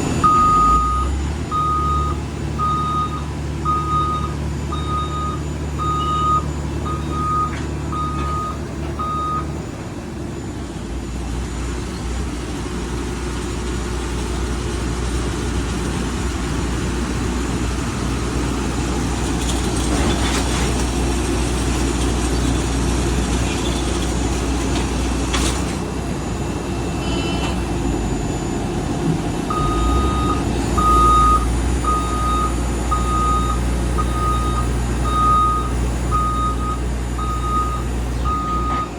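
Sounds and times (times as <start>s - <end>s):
vehicle backup alarm beeping: 0.0s - 12.3s, 25.0s - 38.9s
engine low drone: 0.0s - 38.9s.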